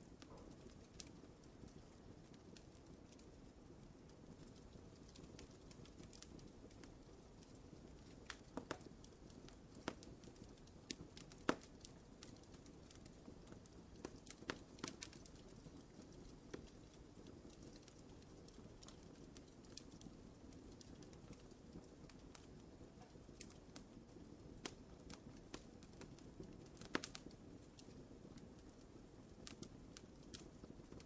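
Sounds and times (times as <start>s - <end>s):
fire low rumble: 0.0s - 31.0s
wood fire crackling and popping: 0.0s - 31.0s.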